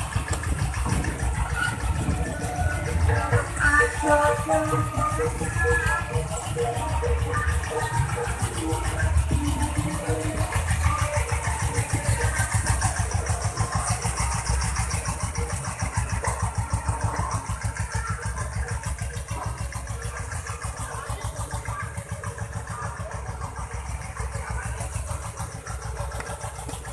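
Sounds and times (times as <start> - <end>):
diesel motorbike engine chugging: 0.0 - 26.9.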